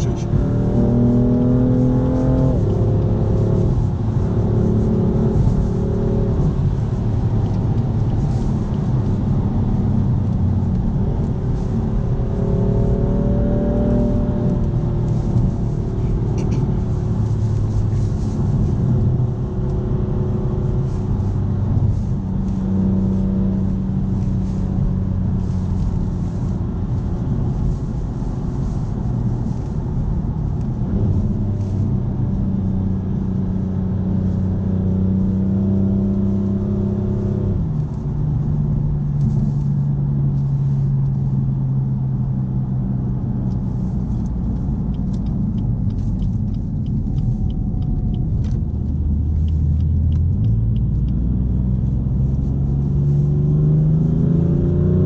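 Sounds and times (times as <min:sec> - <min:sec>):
car engine accelerating: 0:00.0 - 0:55.0
tyre and road noise: 0:00.0 - 0:55.0.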